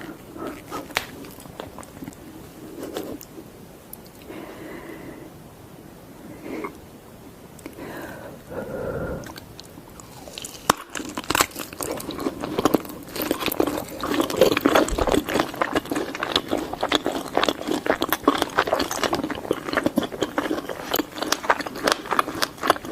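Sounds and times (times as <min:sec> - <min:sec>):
biting and chewing sausages: 0:00.0 - 0:03.4, 0:09.2 - 0:22.9.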